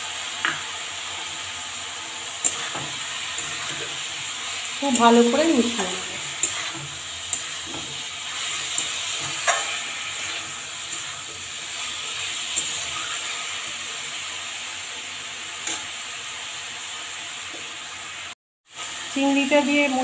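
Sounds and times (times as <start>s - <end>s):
food sizzling in a pan: 0.0s - 20.0s
spatula stirring and scraping: 2.4s - 13.8s.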